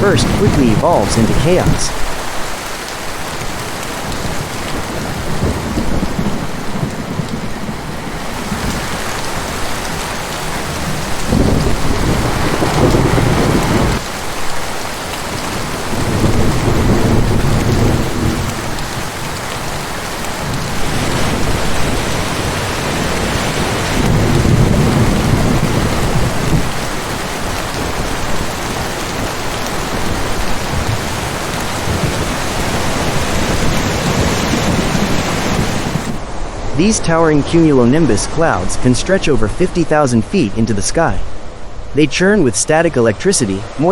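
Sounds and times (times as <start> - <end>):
heavy rain pouring: 0.0 - 43.9
rolling thunder: 4.1 - 14.0, 15.8 - 19.8, 20.4 - 36.5.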